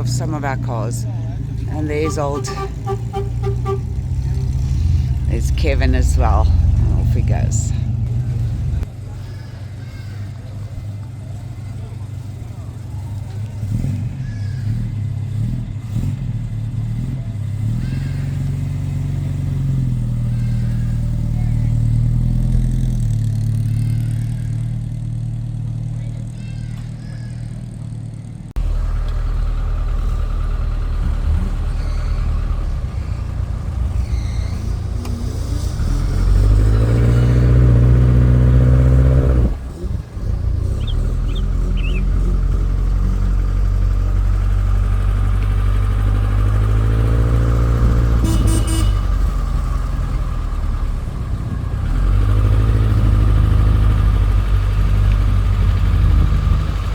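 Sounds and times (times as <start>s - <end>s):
car engines revving: 0.0s - 26.3s, 27.5s - 56.9s.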